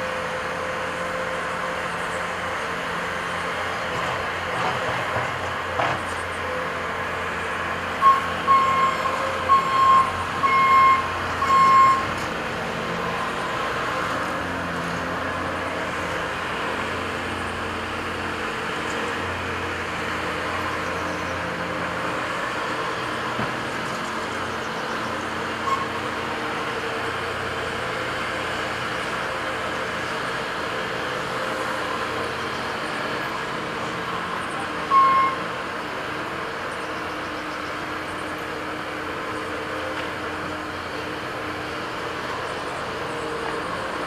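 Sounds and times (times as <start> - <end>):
diesel machinery running: 0.0 - 44.0
back-up alarm beeping: 8.0 - 12.1, 34.9 - 35.4.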